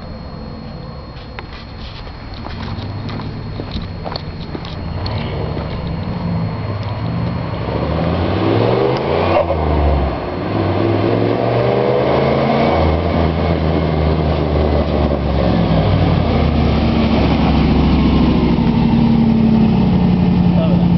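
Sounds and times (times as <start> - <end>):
car engine accelerating: 2.2 - 20.9.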